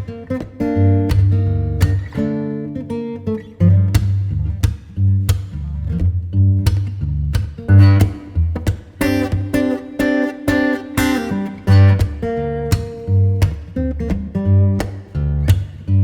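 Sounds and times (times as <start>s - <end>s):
acoustic guitar playing: 0.0s - 16.0s
bass line: 0.7s - 2.3s, 3.6s - 9.8s, 11.0s - 16.0s.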